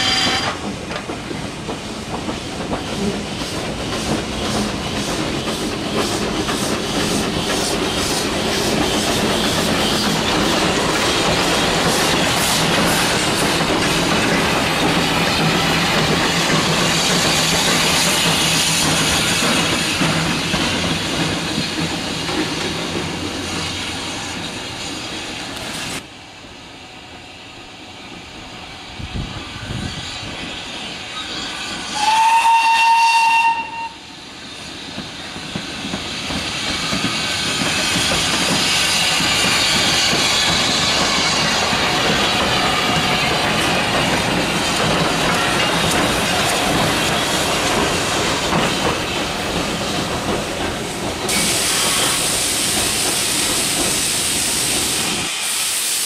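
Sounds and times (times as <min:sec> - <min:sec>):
steam locomotive whistle: 0:00.0 - 0:00.6, 0:31.2 - 0:34.2
train wagons clattering on track: 0:00.0 - 0:26.0, 0:28.0 - 0:55.8.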